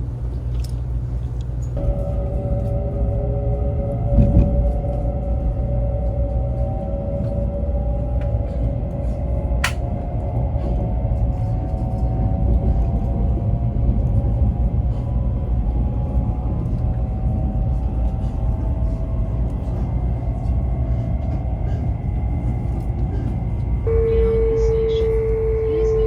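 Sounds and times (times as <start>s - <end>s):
train rumbling with whine: 0.0s - 26.0s.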